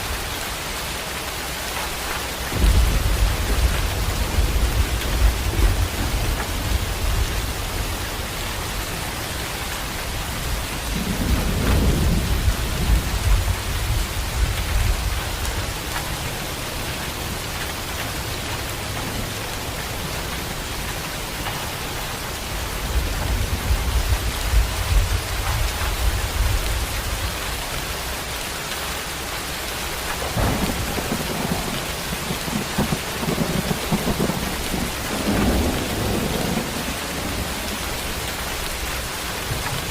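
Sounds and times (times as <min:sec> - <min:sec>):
heavy rain: 0:00.0 - 0:39.9
thunder rumbling: 0:02.5 - 0:17.5, 0:18.3 - 0:28.1, 0:29.9 - 0:39.9.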